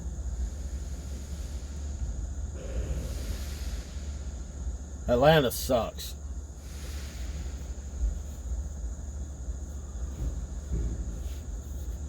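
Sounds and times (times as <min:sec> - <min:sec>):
faint high whine: 0:00.0 - 0:12.0
semi-truck idling rumble: 0:00.0 - 0:12.0
low thump: 0:10.1 - 0:11.4.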